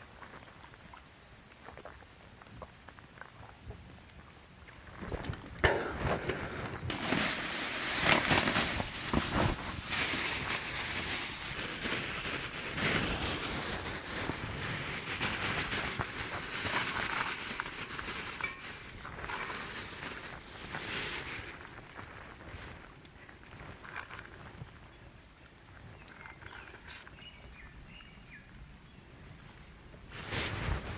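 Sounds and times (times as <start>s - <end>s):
crinkling and rustling: 4.7s - 27.5s, 30.1s - 30.9s
rain hissing: 6.9s - 21.5s.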